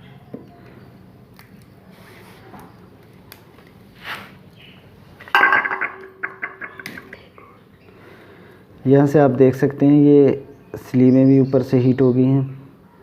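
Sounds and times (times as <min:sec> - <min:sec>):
ringing metal clink: 0:05.3 - 0:07.1.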